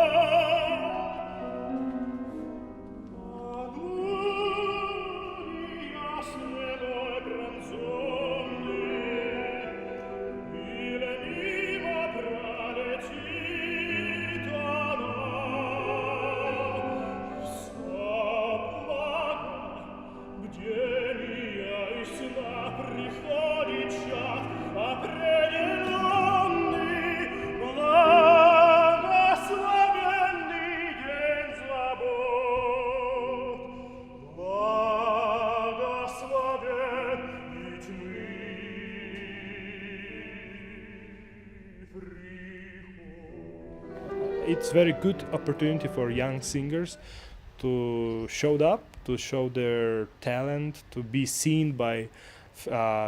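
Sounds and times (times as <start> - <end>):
operatic voice singing: 0.0 - 1.8, 3.1 - 53.0.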